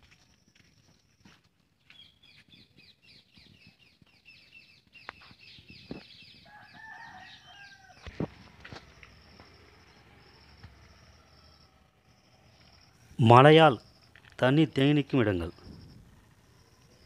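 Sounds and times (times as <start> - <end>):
faint high insect-like tone: 6.5 - 17.0.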